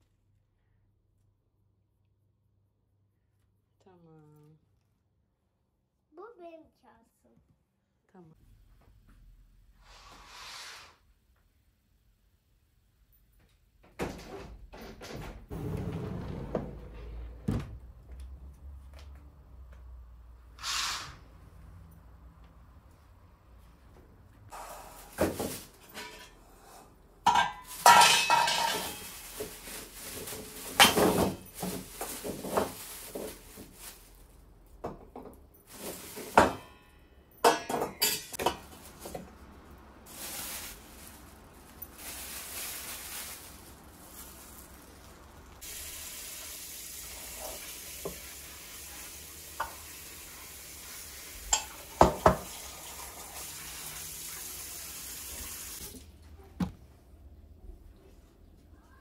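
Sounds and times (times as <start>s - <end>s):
dishes and cutlery clattering: 25.8s - 26.4s, 27.3s - 29.1s, 36.2s - 38.7s, 51.5s - 52.3s.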